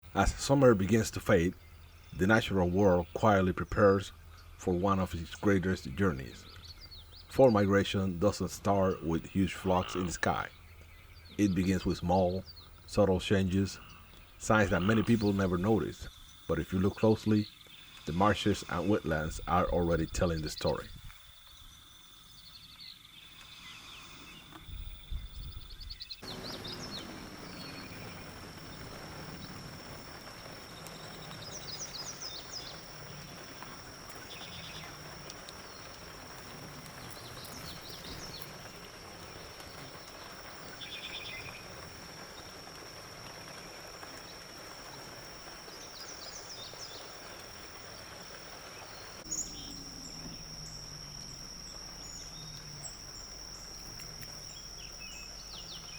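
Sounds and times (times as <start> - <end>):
chirping bird calls: 0.0 - 55.9
high-pitched insect drone: 13.6 - 55.9.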